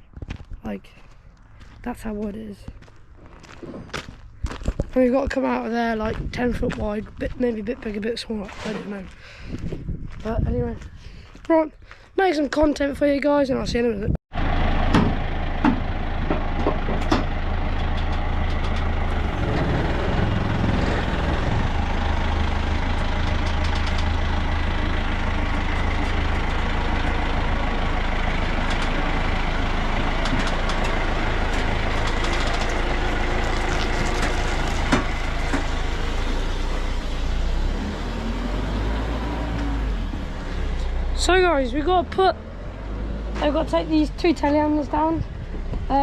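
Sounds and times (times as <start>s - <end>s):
diesel lorry engine humming: 14.3s - 46.0s.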